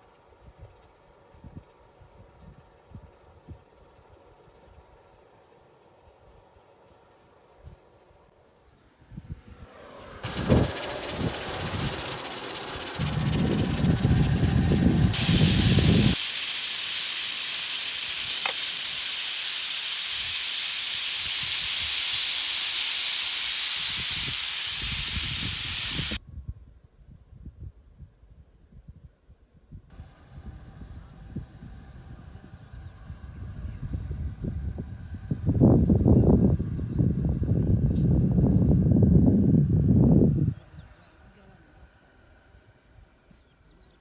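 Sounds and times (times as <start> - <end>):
loud steady hiss: 8.8 - 26.2.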